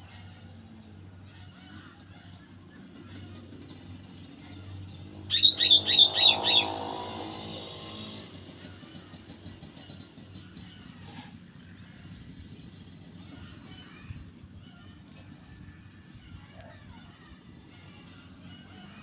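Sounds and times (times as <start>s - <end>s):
vehicle passing: 3.0s - 14.1s
bird chirping: 5.3s - 6.8s.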